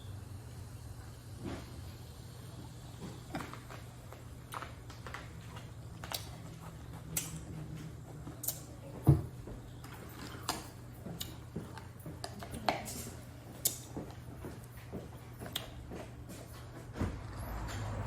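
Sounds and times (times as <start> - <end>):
steady low hum: 0.0 - 17.5
chewing and lip-smacking: 2.9 - 8.8, 9.8 - 16.6.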